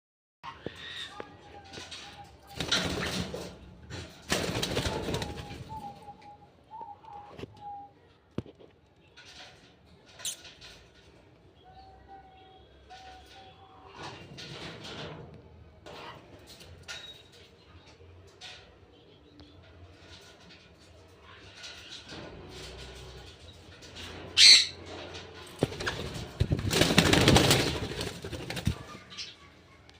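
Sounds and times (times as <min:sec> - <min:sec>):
bird wings flapping: 0:04.2 - 0:05.8, 0:25.5 - 0:29.0
soft bird calls: 0:04.8 - 0:08.4.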